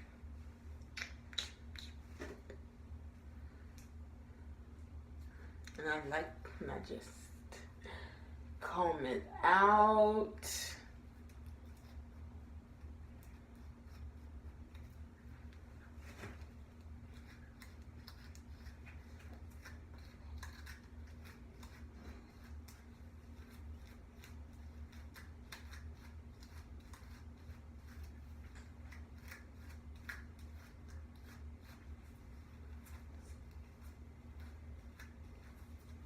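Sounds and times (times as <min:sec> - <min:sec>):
steady low hum: 0:00.0 - 0:36.0
comb scratching through hair: 0:10.9 - 0:36.0.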